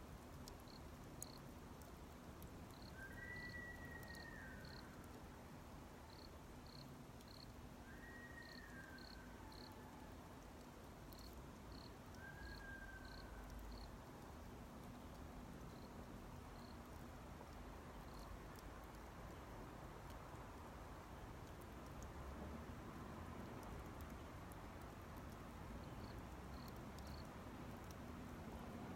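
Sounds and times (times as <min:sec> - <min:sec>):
wood fire popping: 0:00.0 - 0:09.0, 0:10.4 - 0:28.9
insect chirping high pips: 0:02.7 - 0:04.9, 0:06.1 - 0:09.7, 0:11.2 - 0:13.9
drawn-out whistled call: 0:02.9 - 0:04.8, 0:07.8 - 0:09.3, 0:12.2 - 0:13.5.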